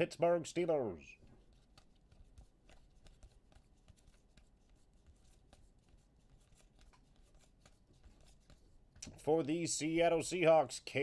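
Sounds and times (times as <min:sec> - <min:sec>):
trading cards rustling and clicking: 0:01.4 - 0:09.6.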